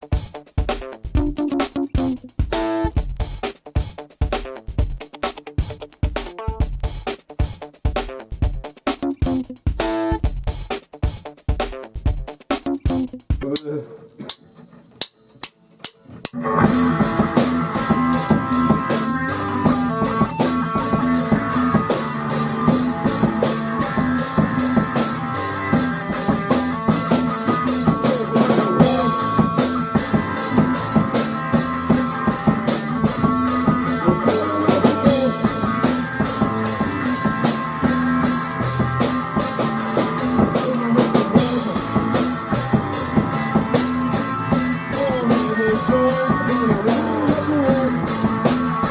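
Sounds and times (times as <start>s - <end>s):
rock music: 0.0s - 13.4s, 16.4s - 48.9s.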